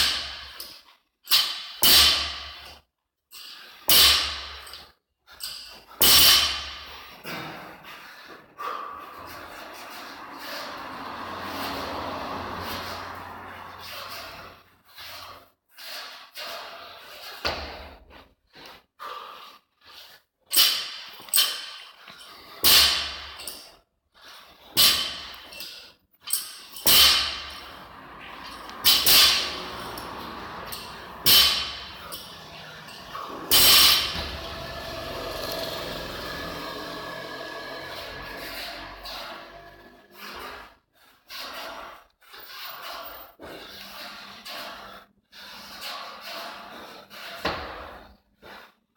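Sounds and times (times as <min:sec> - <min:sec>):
heavy gym equipment impacts: 0:01.3 - 0:02.6, 0:03.9 - 0:04.7, 0:06.0 - 0:07.8, 0:26.4 - 0:36.8.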